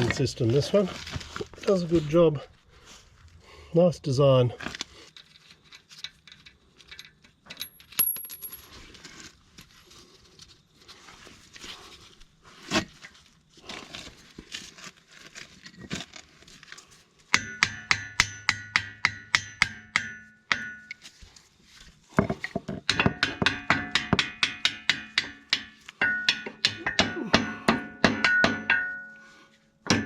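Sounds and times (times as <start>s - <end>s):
hammer blows on steel ringing: 26.0s - 29.3s.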